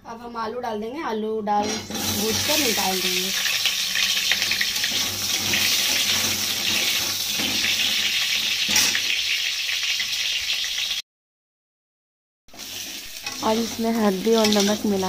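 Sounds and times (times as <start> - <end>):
metal spatula scraping pan: 1.6 - 9.3, 12.6 - 15.0
potatoes sizzling in oil: 1.6 - 11.0, 12.5 - 15.0.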